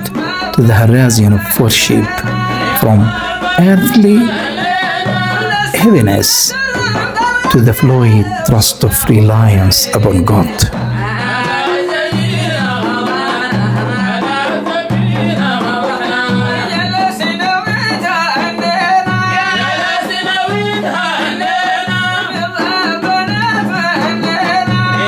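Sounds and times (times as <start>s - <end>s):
instrumental accompaniment: 0.0s - 11.2s
steady low beat: 0.0s - 11.2s
person singing: 0.0s - 16.2s.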